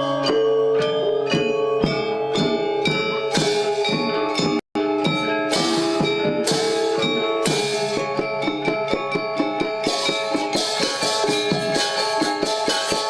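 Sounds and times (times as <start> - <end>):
drum strokes: 0.0 - 13.0
metallophones and gongs ringing: 0.0 - 13.0
cymbal crashes: 3.3 - 8.2.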